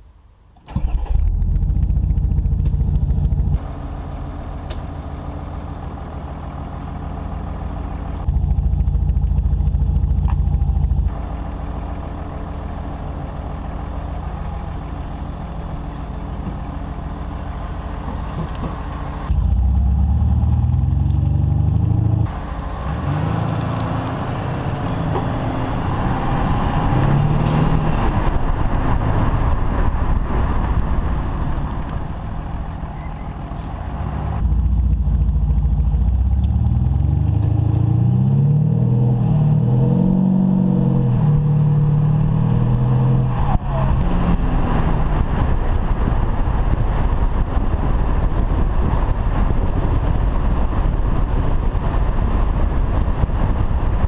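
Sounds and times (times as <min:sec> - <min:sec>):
car engine and exhaust: 0:00.0 - 0:54.0.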